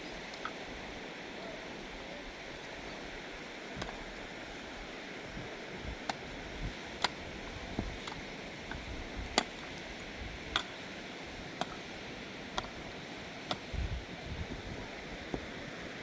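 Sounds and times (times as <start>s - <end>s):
rain hiss: 0.0s - 16.0s.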